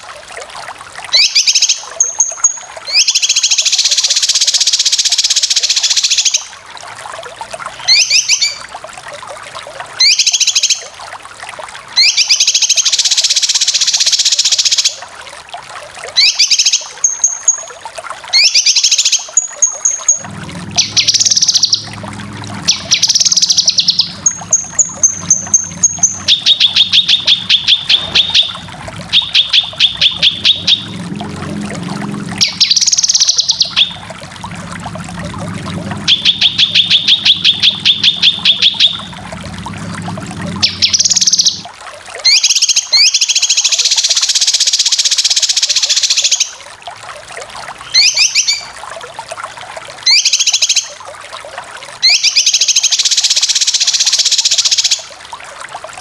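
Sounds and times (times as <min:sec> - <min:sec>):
bulbul song rapid chattering: 0:01.1 - 0:06.5, 0:18.3 - 0:46.5
steady low hum: 0:20.2 - 0:41.6.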